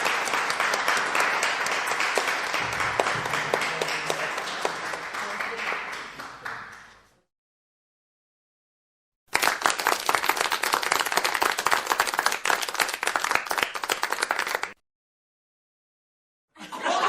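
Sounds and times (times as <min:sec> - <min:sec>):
hands clapping: 0:00.0 - 0:07.2, 0:09.3 - 0:14.8.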